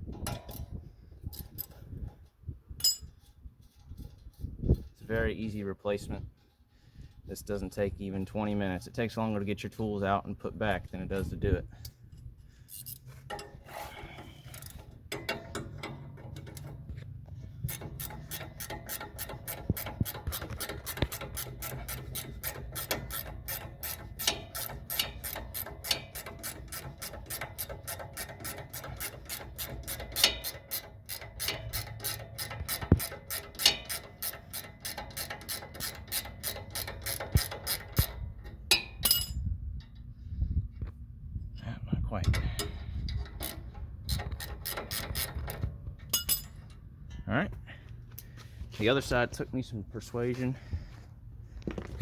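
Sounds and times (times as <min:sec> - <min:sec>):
hand ratchet clicking: 0:12.7 - 0:39.3, 0:42.3 - 0:46.8.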